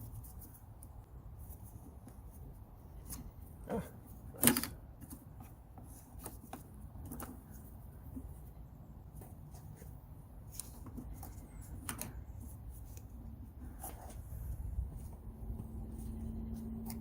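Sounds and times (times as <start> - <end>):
low background rumble: 10.0 - 17.0.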